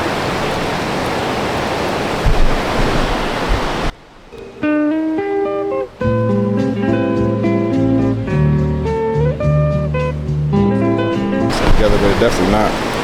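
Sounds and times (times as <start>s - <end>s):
waterfall rushing: 0.0s - 4.3s, 11.2s - 13.0s
thumps on microphone: 2.2s - 3.9s, 11.2s - 13.0s
acoustic guitar music: 4.3s - 13.0s.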